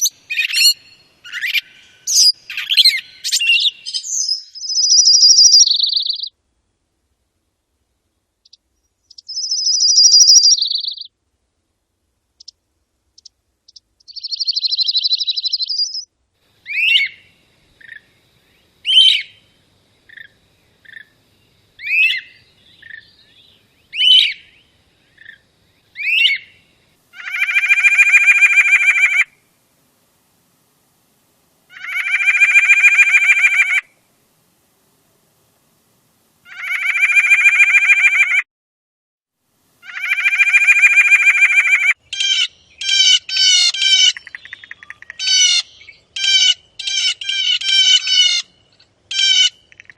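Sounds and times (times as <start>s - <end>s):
harsh nasal bird calls: 0.0s - 6.3s, 8.4s - 11.1s, 13.2s - 19.4s, 21.8s - 29.4s, 31.7s - 34.0s, 36.4s - 38.4s, 39.8s - 49.9s
high buzzy bird trills: 0.0s - 6.4s, 8.4s - 11.1s, 13.2s - 29.5s, 31.7s - 34.0s, 36.4s - 38.4s, 39.8s - 49.9s.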